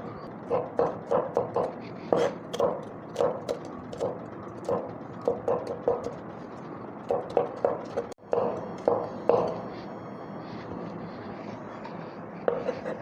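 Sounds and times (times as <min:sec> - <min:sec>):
knife chopping on cutting board: 0:00.5 - 0:06.2.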